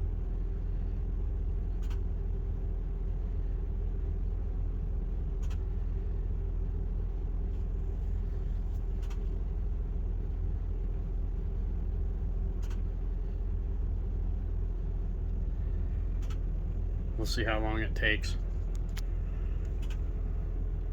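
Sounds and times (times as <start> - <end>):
generator running: 0.0 - 20.9
faint clicks: 12.5 - 12.9, 16.1 - 16.5, 18.7 - 20.1.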